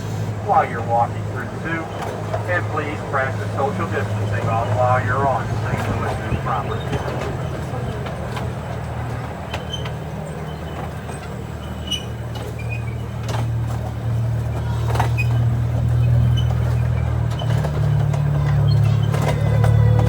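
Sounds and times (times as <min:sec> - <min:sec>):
train engine droning: 0:00.0 - 0:20.0.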